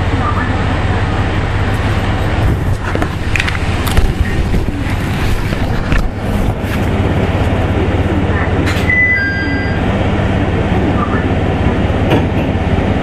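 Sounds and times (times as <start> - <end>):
diesel engine low drone: 0.0 - 13.0
clicks and knocks from railcar: 12.0 - 12.6.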